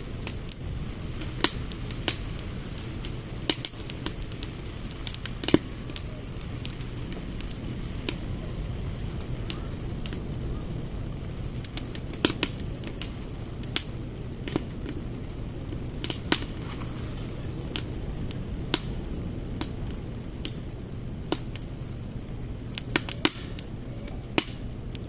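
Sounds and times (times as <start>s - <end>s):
fire low rush: 0.0s - 25.0s
firewood crackling and popping: 0.0s - 25.0s.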